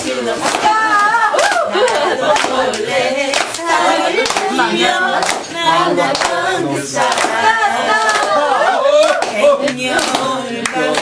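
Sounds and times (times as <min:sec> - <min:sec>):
people singing together: 0:00.0 - 0:11.0
hands clapping in time: 0:09.0 - 0:11.0.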